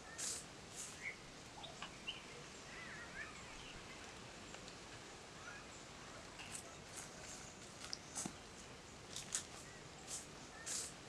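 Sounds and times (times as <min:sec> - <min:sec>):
bird chirps: 0:00.0 - 0:04.1, 0:09.6 - 0:11.0
outdoor background hiss: 0:00.0 - 0:11.0.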